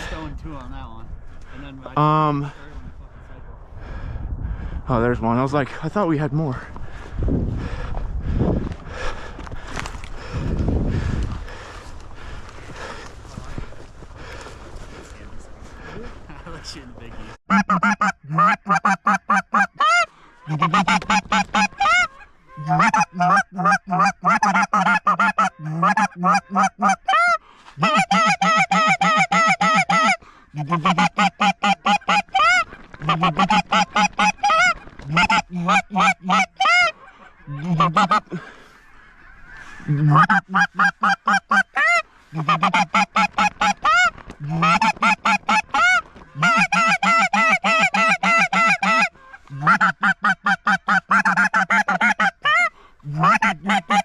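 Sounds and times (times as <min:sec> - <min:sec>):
goose call honks and clucks: 0:17.5 - 0:54.0.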